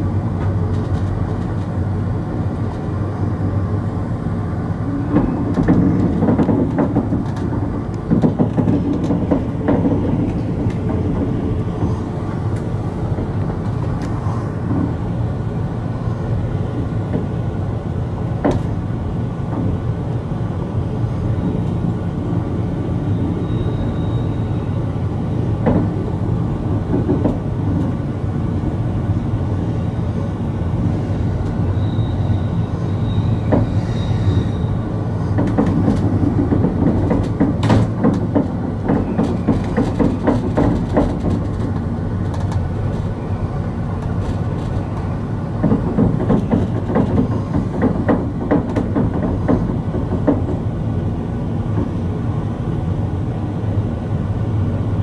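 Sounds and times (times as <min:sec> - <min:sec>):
freight train rumbling past: 0:00.0 - 0:55.0
faint high wheel squeals: 0:23.0 - 0:24.9, 0:31.6 - 0:35.0.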